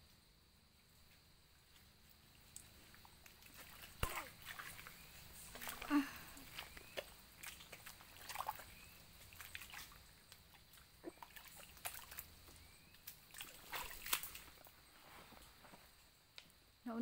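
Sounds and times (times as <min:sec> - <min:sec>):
footsteps splashing through wet ground: 0:01.7 - 0:14.8.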